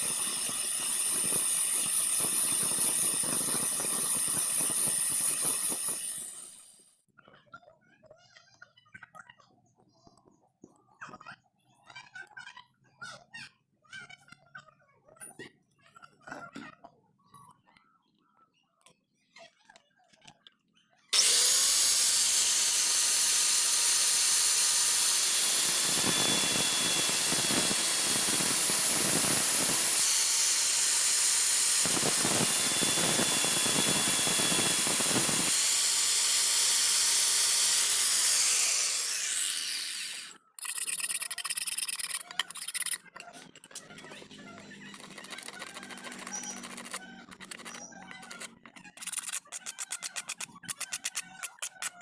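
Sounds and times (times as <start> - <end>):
power saw cutting steel: 0.0 - 6.9, 21.2 - 52.0.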